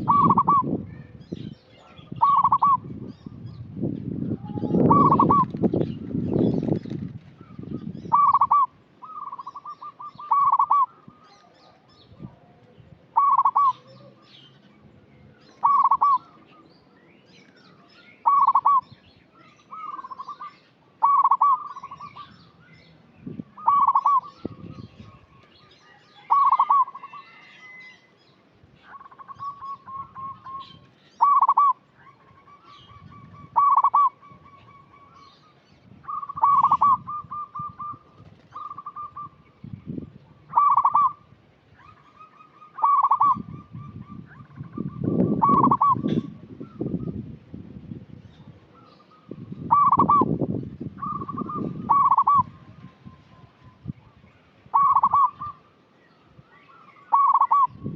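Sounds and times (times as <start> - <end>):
zebra dove cooing: 0.0 - 0.8, 1.8 - 2.9, 4.3 - 5.6, 7.4 - 14.4, 15.6 - 16.6, 18.2 - 18.9, 19.7 - 22.4, 23.6 - 25.2, 26.2 - 27.8, 28.8 - 35.3, 36.0 - 39.4, 40.3 - 47.2, 48.8 - 50.3, 51.0 - 53.6, 54.7 - 55.7, 57.1 - 57.9.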